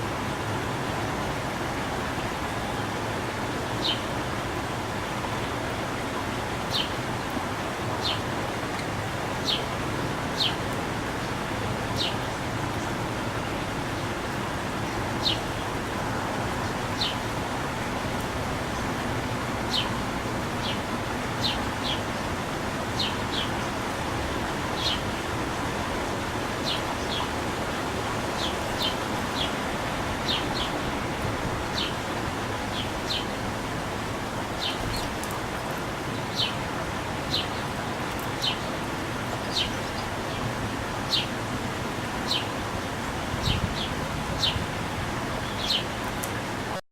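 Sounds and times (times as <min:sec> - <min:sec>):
steady background hiss: 0:00.0 - 0:46.8
small birds chirping: 0:03.8 - 0:04.0, 0:06.7 - 0:07.0, 0:09.4 - 0:09.7, 0:10.4 - 0:10.6, 0:12.0 - 0:12.9, 0:14.9 - 0:15.8, 0:16.5 - 0:17.3, 0:19.7 - 0:20.0, 0:20.6 - 0:22.2, 0:23.0 - 0:23.8, 0:24.7 - 0:25.2, 0:26.6 - 0:27.3, 0:28.1 - 0:29.6, 0:30.2 - 0:32.1, 0:32.7 - 0:33.4, 0:34.6 - 0:35.4, 0:36.2 - 0:36.6, 0:37.2 - 0:38.8, 0:39.4 - 0:40.5, 0:41.1 - 0:41.4, 0:42.3 - 0:42.6, 0:43.4 - 0:44.6, 0:45.4 - 0:46.4.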